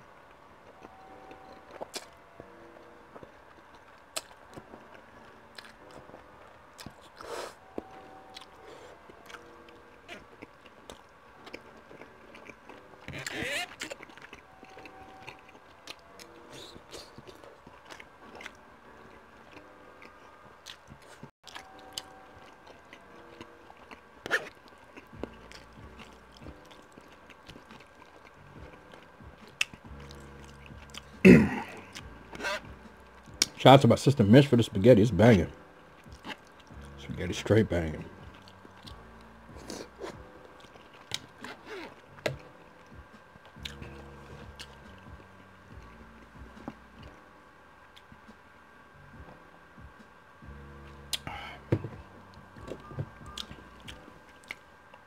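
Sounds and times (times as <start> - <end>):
wet chewing and mouth clicks: 0.7 - 2.2, 3.1 - 33.6, 38.2 - 45.3, 52.3 - 55.0.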